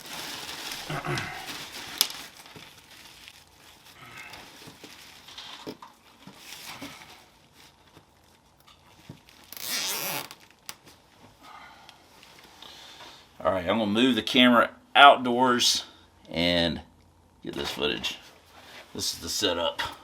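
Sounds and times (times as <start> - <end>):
plastic bag crinkling and rustling: 0.0 - 11.3.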